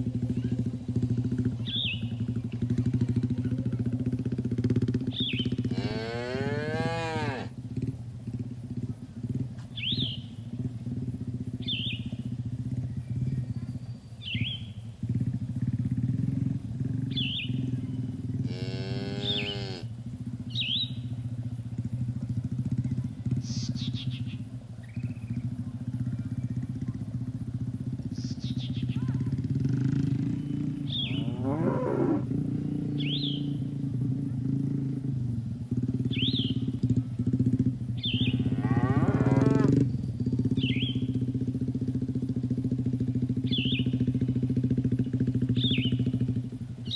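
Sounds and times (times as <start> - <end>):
small bird chirping: 0.0 - 4.1, 4.8 - 5.8, 8.3 - 46.9
cattle mooing: 5.7 - 7.5, 18.4 - 19.9, 31.0 - 32.3, 38.4 - 39.8.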